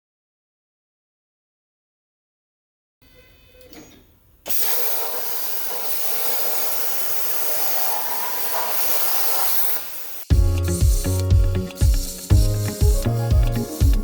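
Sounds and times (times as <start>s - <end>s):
plasma torch cutting steel hiss: 4.5s - 14.0s
music with heavy beat: 10.3s - 14.0s.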